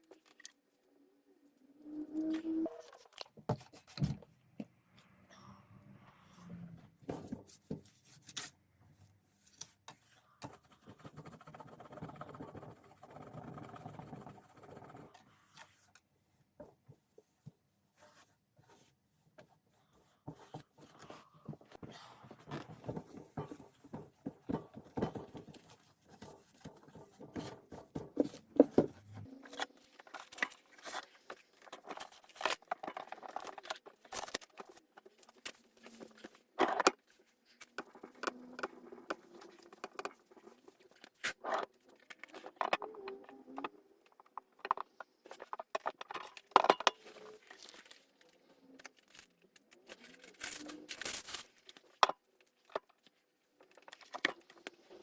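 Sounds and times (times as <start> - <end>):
rustling and crinkling: 20.3 - 43.3, 44.0 - 55.0.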